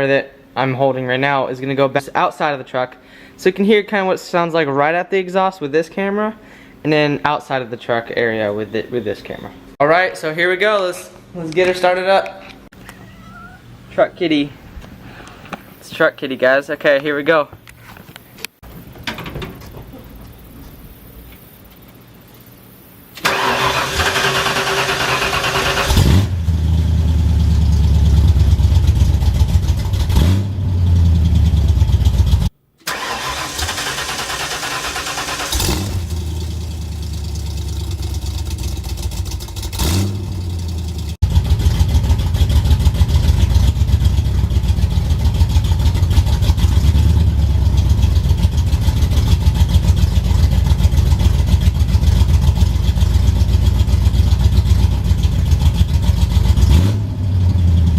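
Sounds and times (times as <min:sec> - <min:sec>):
engine cranking and starting: 0:23.2 - 0:26.3, 0:32.8 - 0:43.9
engine idling with choppy exhaust: 0:25.8 - 0:32.5, 0:35.4 - 0:57.9.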